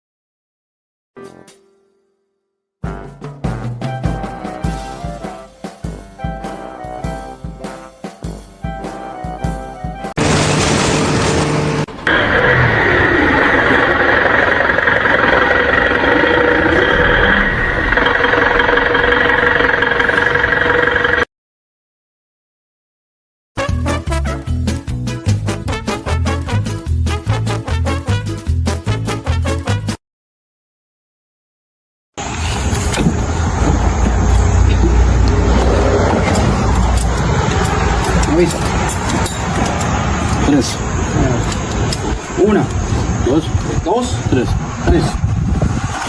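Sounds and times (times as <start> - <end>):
machine engine whining: 10.2 - 21.3, 32.2 - 43.0.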